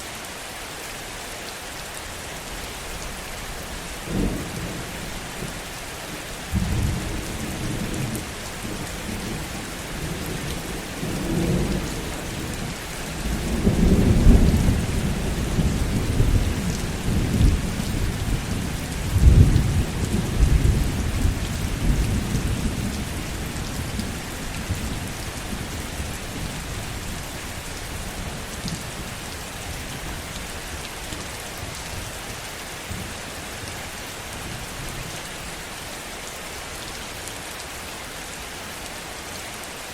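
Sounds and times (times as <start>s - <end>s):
heavy rain: 0.0s - 39.9s
low rumble of thunder: 6.5s - 30.8s.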